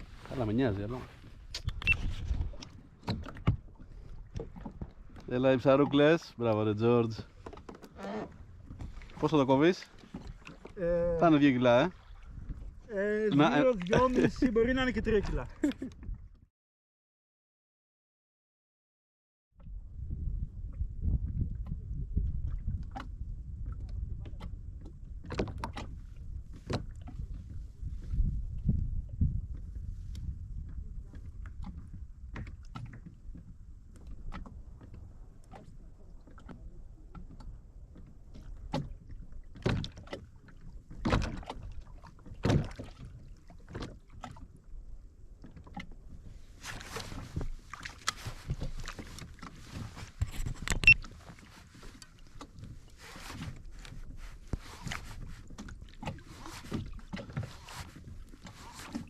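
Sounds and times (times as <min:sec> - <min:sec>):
knocks against kayak hull: 0:42.3 - 0:42.9.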